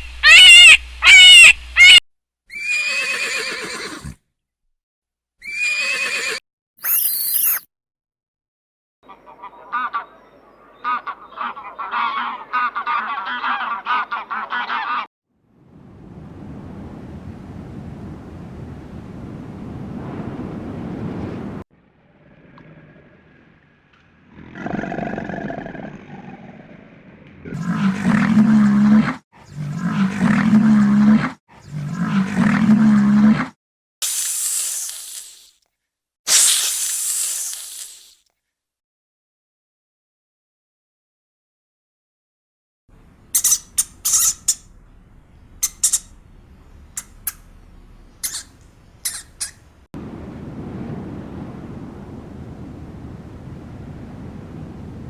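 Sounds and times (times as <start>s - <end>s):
waterfowl honking: 0.2s - 2.0s, 9.1s - 15.1s, 43.4s - 44.8s, 45.6s - 46.2s, 48.1s - 49.7s
bursts of hissing noise: 34.0s - 35.6s, 36.3s - 38.2s, 43.2s - 44.8s.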